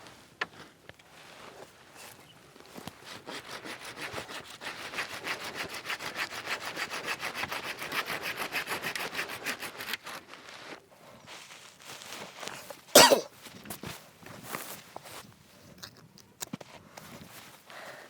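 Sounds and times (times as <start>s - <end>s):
handsaw cutting wood: 3.0s - 10.2s.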